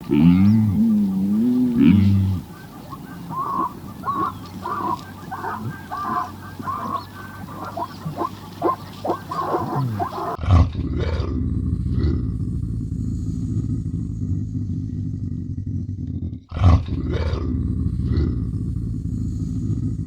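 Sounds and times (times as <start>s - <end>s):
rapid repeated animal calls: 0.0s - 10.4s.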